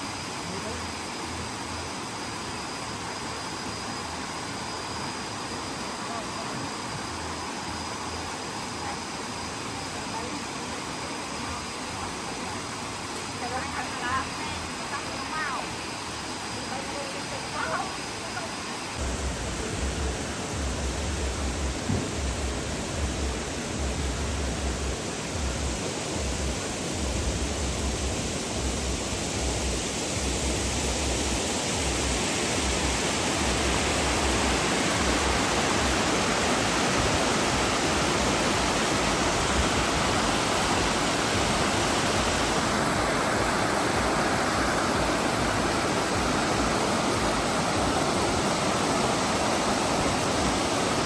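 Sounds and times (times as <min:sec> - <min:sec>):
waterfall rushing: 0:00.0 - 0:51.0
low rumble: 0:19.0 - 0:31.1.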